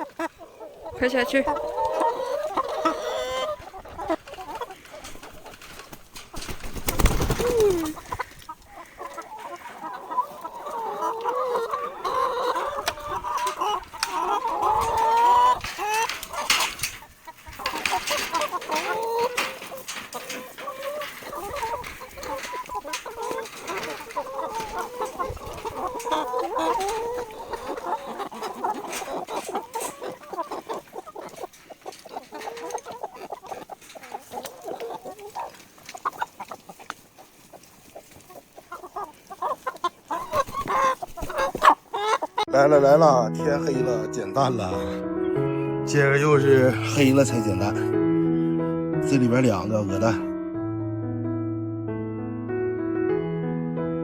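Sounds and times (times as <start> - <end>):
chicken falling call: 0.0 - 37.3, 37.9 - 42.5
chickens clucking: 0.0 - 48.5, 49.1 - 50.3.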